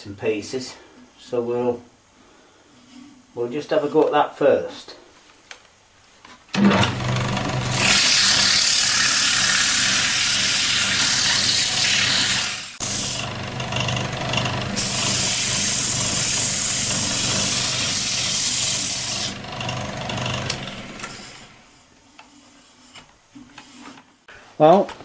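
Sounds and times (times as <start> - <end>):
lathe motor hum: 6.6 - 21.7
sandpaper sanding wood: 7.8 - 13.3, 14.7 - 19.4.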